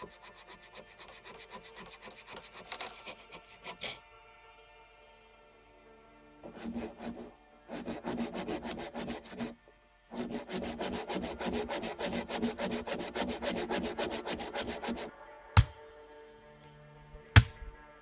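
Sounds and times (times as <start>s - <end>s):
handsaw cutting wood: 0.0s - 4.0s, 6.4s - 15.1s.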